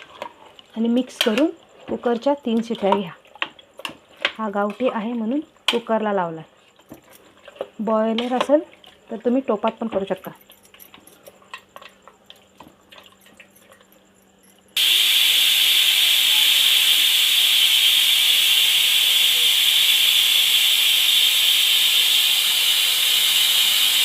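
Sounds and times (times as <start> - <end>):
pressure cooker steam hiss: 14.8 - 24.0.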